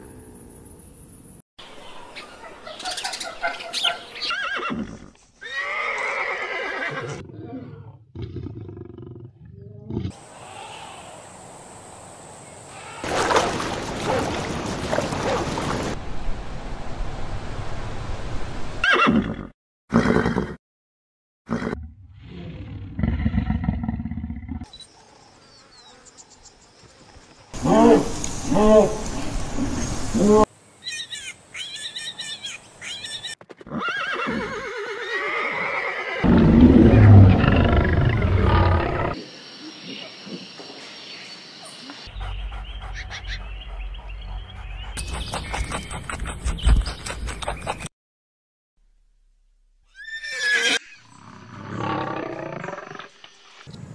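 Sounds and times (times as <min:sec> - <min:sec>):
horse neighing: 0:04.3 - 0:07.2, 0:33.7 - 0:39.2, 0:49.9 - 0:51.1
dogs splashing through surf: 0:13.0 - 0:16.0
ocean waves breaking: 0:13.0 - 0:16.3.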